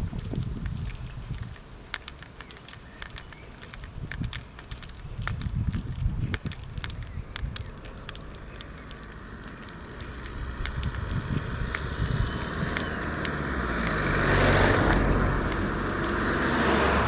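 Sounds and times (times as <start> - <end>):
car passing by: 9.2 - 17.0.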